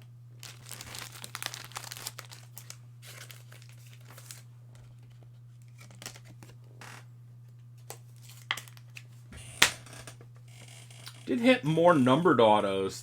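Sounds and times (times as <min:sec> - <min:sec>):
low electrical hum: 0:00.0 - 0:13.0
wrappers and cards crinkling: 0:00.4 - 0:07.0, 0:07.8 - 0:09.0.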